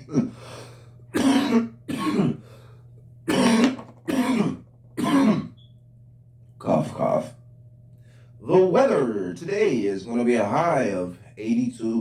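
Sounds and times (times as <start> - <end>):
man coughing: 1.1 - 2.4, 3.3 - 5.6.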